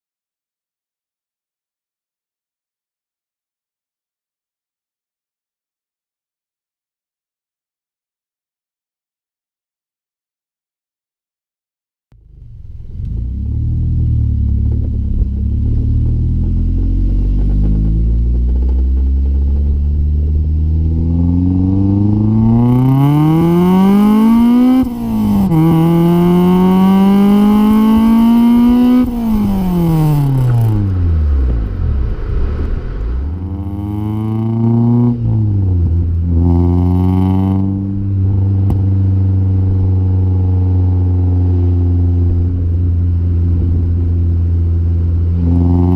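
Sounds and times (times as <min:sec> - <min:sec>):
car engine revving: 0:12.2 - 0:45.9.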